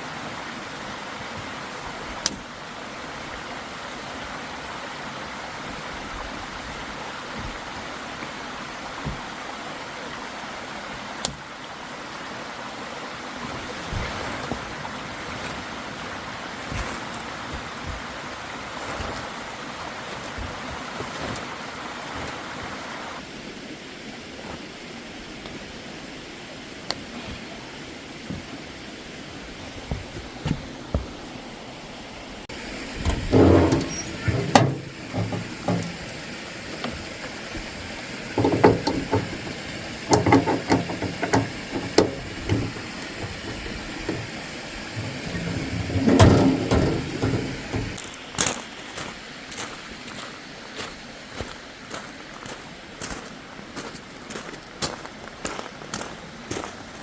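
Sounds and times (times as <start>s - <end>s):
steady rushing outdoor noise: 0.0s - 57.0s
wind buffeting microphone: 38.4s - 48.0s
knocks and clatter of objects handled: 38.4s - 48.1s.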